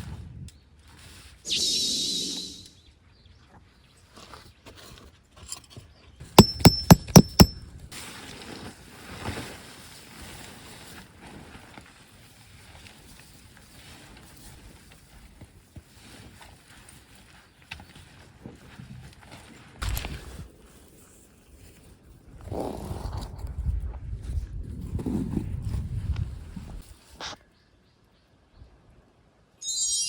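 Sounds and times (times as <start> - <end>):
tent peg being hammered: 6.4 - 7.6.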